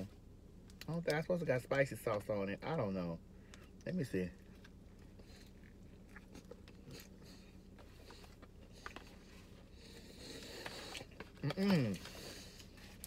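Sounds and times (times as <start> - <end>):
low steady hum: 0.0 - 13.0
biting and chewing food: 4.4 - 13.0.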